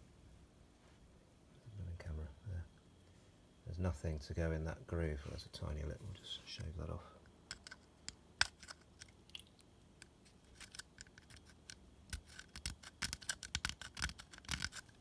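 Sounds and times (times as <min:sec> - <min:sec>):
knife blade scraping plastic: 0:07.5 - 0:09.2, 0:10.0 - 0:15.0.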